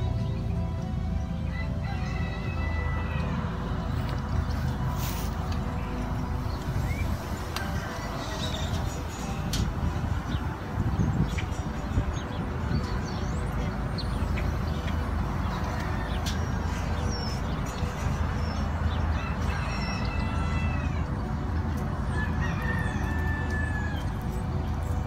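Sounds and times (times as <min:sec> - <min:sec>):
rooster crowing: 0:01.5 - 0:03.8, 0:06.9 - 0:09.0, 0:19.1 - 0:21.2, 0:22.1 - 0:24.3.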